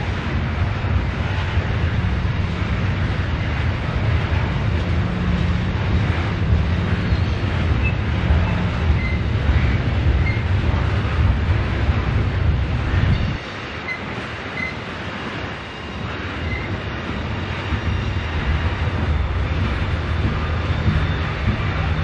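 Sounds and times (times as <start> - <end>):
diesel train engine rumble: 0.0 - 22.0
high wheel squeals: 6.0 - 10.6, 13.1 - 14.9, 15.6 - 16.8, 17.4 - 22.0.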